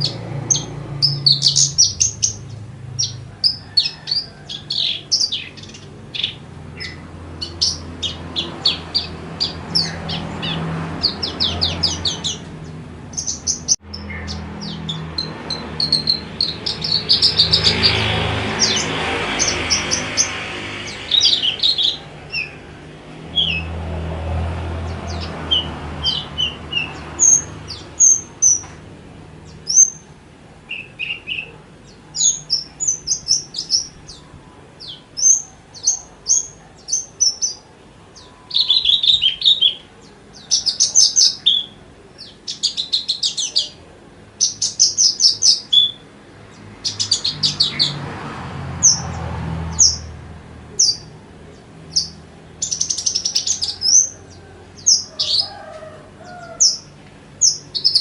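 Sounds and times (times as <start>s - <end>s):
lark singing: 0.0s - 23.7s, 30.7s - 46.1s, 51.9s - 58.0s.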